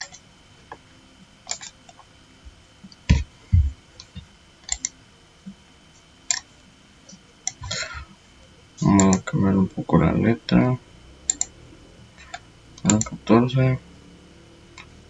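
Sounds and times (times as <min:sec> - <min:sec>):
mouse and keyboard clicks: 0:01.5 - 0:01.8, 0:04.0 - 0:04.9, 0:11.3 - 0:11.5
soft low thumps: 0:02.4 - 0:04.4.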